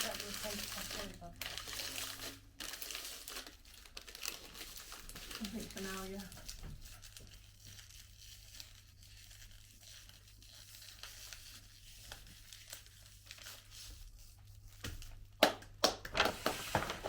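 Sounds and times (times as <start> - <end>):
wrappers crinkling and rustling: 0.0 - 15.3, 16.1 - 17.0.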